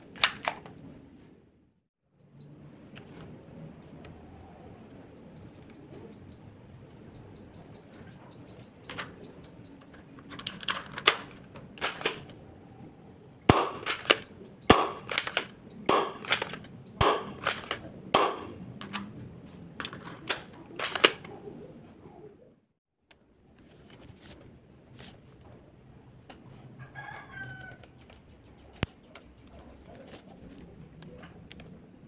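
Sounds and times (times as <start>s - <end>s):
airsoft gun cocking and firing: 0.0s - 0.8s, 10.4s - 12.4s, 13.5s - 19.1s, 19.8s - 21.3s.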